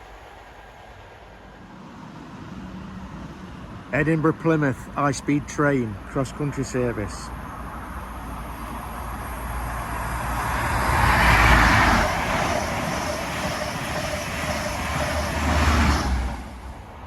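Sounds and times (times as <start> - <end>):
diesel train passing at speed: 0.0 - 17.0
turbocharger whine: 6.0 - 16.7.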